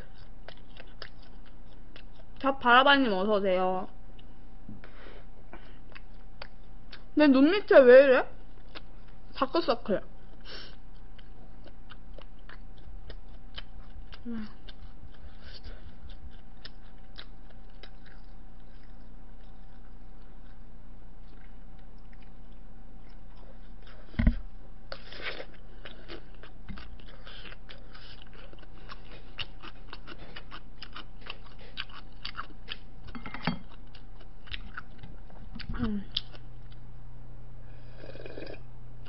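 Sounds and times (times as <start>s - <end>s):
chewing with wet mouth clicks: 0.0s - 2.6s, 4.1s - 4.4s, 5.6s - 7.2s, 8.5s - 9.2s, 10.3s - 20.6s, 21.2s - 24.3s, 24.9s - 36.8s.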